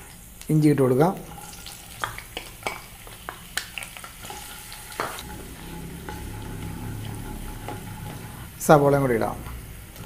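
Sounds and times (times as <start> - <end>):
frying sizzle: 0.0 - 10.0
spoon stirring: 1.3 - 10.0.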